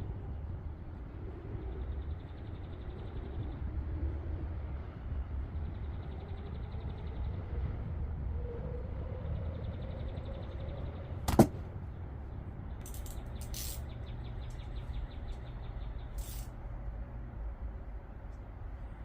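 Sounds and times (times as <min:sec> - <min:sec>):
steady low rumble: 0:00.0 - 0:19.0
short hissing sounds: 0:12.8 - 0:14.0, 0:16.1 - 0:16.6.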